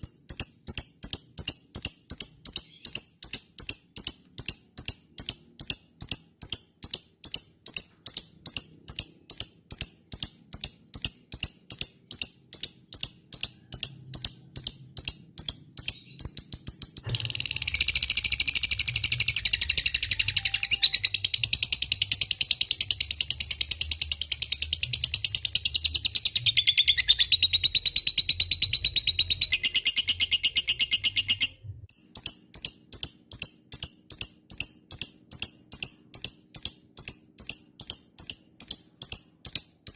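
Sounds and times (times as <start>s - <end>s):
lovebird ticking chirps: 0.0s - 39.9s
lovebird chattering trill: 0.3s - 31.6s.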